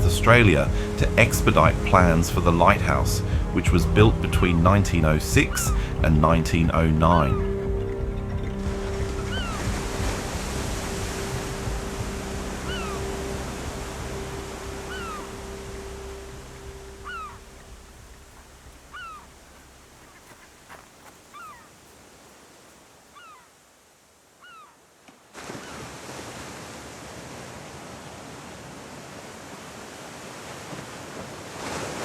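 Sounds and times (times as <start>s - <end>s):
music: 0.0s - 20.0s
soft outdoor hiss: 0.0s - 26.7s
bird downward-sliding call: 2.9s - 20.7s.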